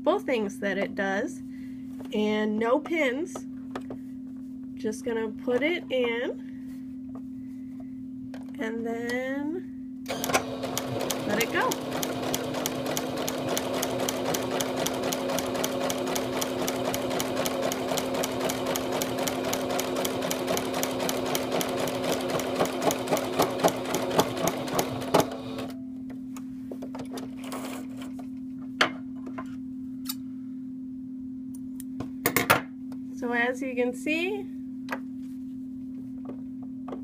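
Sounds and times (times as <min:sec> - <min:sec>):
sewing machine stitching: 0:10.1 - 0:25.7.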